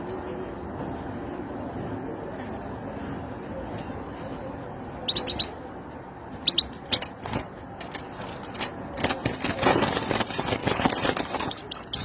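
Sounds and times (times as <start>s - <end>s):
bird chirping: 5.1s - 5.6s, 6.4s - 8.6s, 11.4s - 12.0s.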